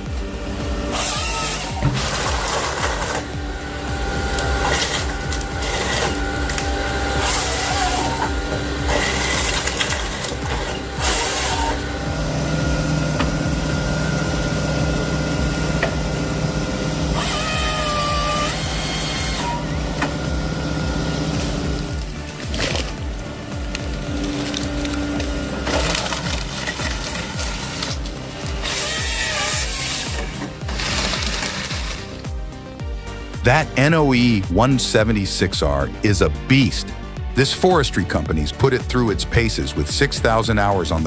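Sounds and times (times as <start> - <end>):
hissing bursts: 0.0 - 33.5
hydraulic whine: 0.0 - 37.4
diesel engine drone: 0.0 - 41.0.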